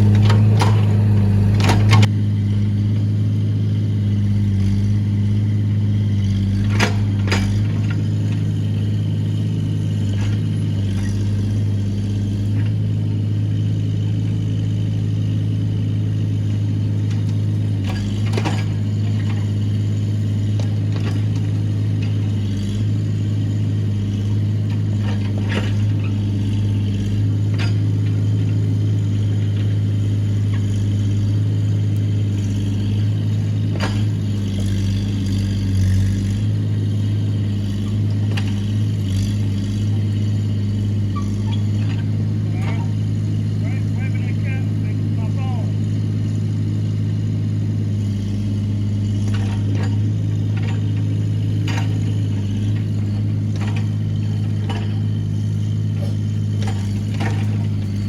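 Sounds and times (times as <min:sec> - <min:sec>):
sharp knocks and clanks: 0:00.0 - 0:02.1
excavator engine running: 0:00.0 - 0:58.0.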